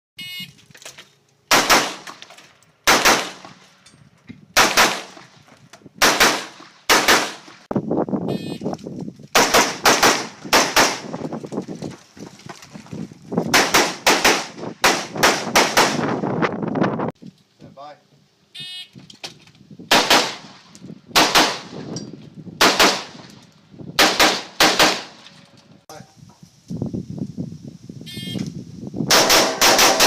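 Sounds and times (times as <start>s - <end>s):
rifle shots: 1.5s - 2.2s, 2.8s - 3.6s, 4.6s - 5.3s, 6.0s - 7.7s, 9.4s - 11.1s, 13.5s - 16.2s, 19.9s - 21.9s, 22.6s - 23.4s, 24.0s - 25.3s, 29.1s - 30.0s.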